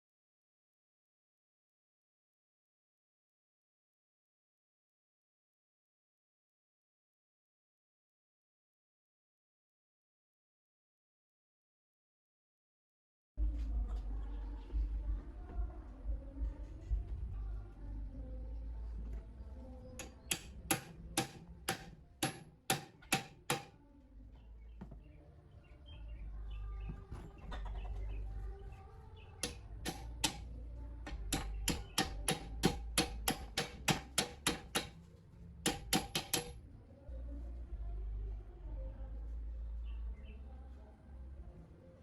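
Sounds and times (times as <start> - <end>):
low steady hum: 13.4 - 42.0
sharp taps on metal: 20.0 - 23.7, 29.4 - 30.5, 31.1 - 35.0, 35.7 - 36.6.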